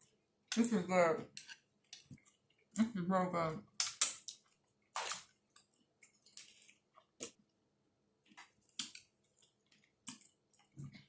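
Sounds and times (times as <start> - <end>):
person chewing food: 1.4 - 2.7, 3.8 - 7.6, 8.2 - 11.0.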